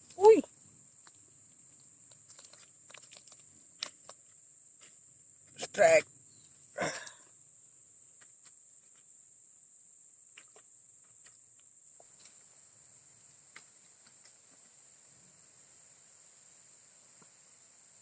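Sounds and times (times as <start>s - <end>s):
faint clicks: 1.0s - 4.2s.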